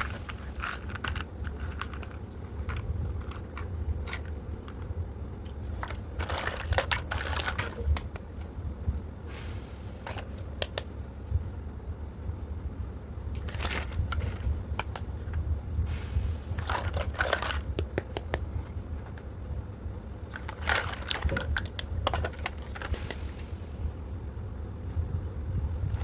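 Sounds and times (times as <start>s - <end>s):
steady low hum: 0.0s - 26.0s
plastic packaging crinkling: 5.5s - 8.2s, 13.4s - 15.4s, 16.5s - 18.4s, 20.3s - 23.3s.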